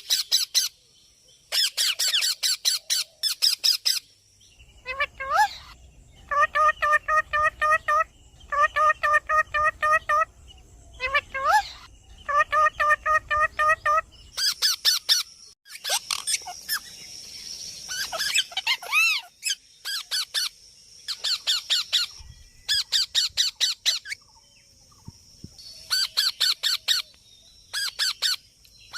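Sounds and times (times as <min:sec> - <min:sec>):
parrot squawking: 0:04.8 - 0:10.3, 0:11.0 - 0:16.8, 0:17.9 - 0:20.5.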